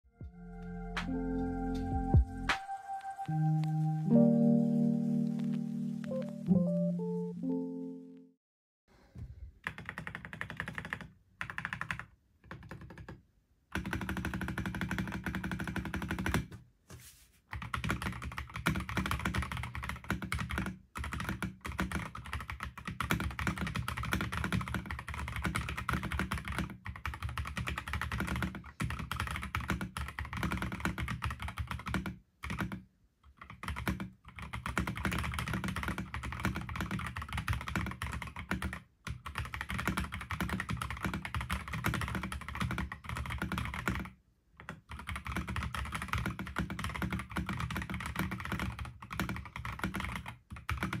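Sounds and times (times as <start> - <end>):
fast mechanical keyboard typing: 9.6 - 16.5, 17.5 - 51.0.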